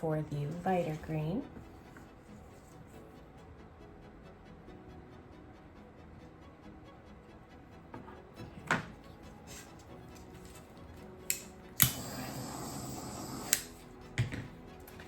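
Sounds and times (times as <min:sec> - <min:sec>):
spray hiss: 0:11.8 - 0:13.6.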